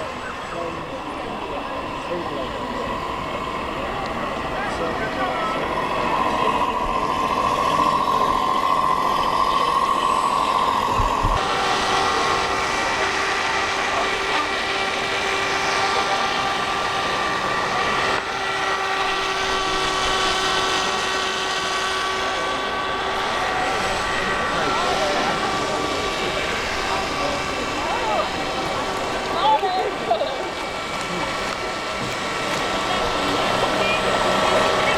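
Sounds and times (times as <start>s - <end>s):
mechanical hum: 0.0s - 34.9s
steady drone: 0.0s - 34.9s.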